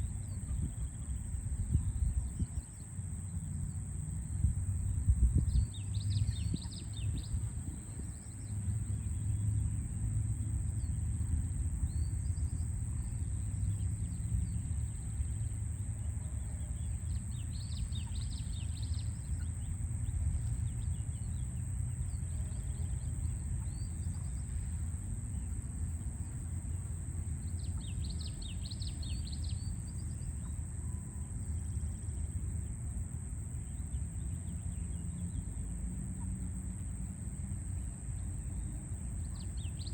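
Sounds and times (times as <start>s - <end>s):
distant city traffic rumble: 0.0s - 39.9s
songbird chirping: 11.8s - 32.4s.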